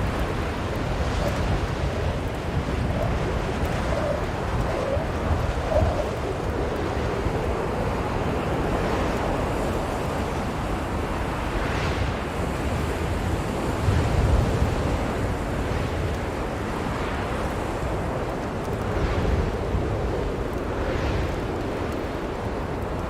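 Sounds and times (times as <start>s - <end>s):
blizzard wind blowing: 0.0s - 23.0s.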